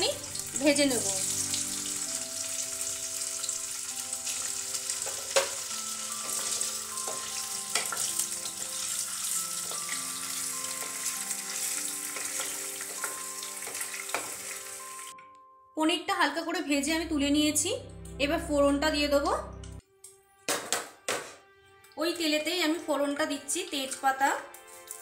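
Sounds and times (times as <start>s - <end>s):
paneer sizzling in oil: 0.0s - 15.2s, 23.7s - 25.0s.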